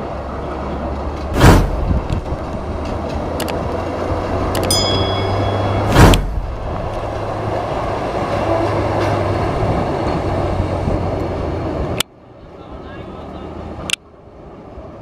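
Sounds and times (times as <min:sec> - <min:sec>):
vehicle rumbling on railway track: 0:00.0 - 0:15.0
loud thump: 0:01.3 - 0:02.2, 0:05.5 - 0:07.0.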